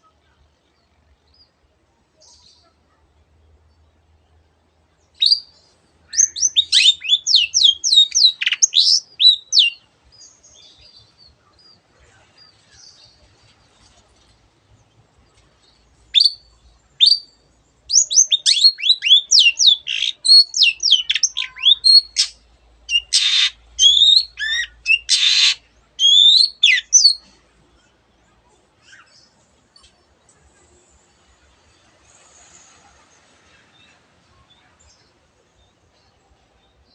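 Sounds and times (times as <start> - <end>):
bird singing whistled notes: 5.1 - 9.8, 16.1 - 27.2
harsh rasping bird calls: 6.2 - 9.8, 18.5 - 27.2.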